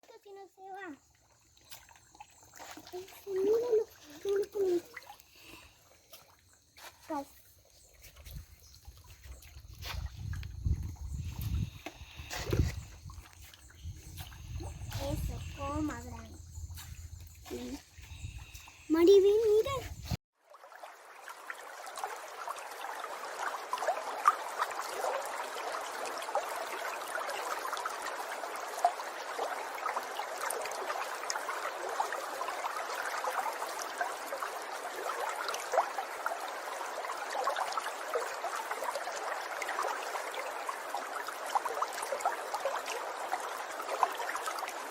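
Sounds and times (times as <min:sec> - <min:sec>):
babbling water trickling: 0:00.1 - 0:19.9.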